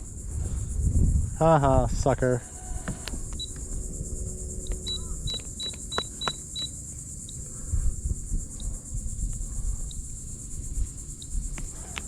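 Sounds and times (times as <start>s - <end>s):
insect chorus buzzing: 0.0s - 12.0s
low rumble: 3.2s - 11.0s.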